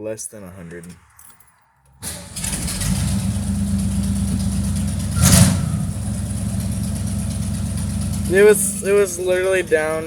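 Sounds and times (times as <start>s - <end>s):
engine idling: 2.0s - 10.0s.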